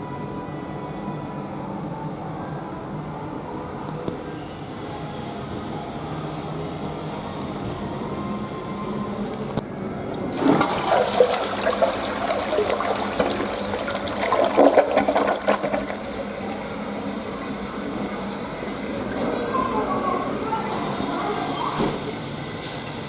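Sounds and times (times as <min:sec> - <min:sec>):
toilet flushing: 0:10.0 - 0:23.0
water gurgling: 0:10.2 - 0:21.3.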